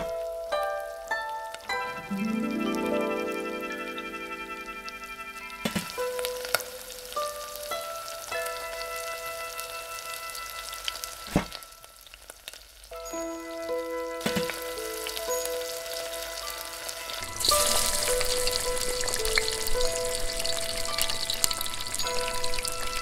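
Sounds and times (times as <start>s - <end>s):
soft background music: 0.0s - 12.2s, 12.9s - 23.0s
dumplings sizzling in oil: 4.8s - 23.0s.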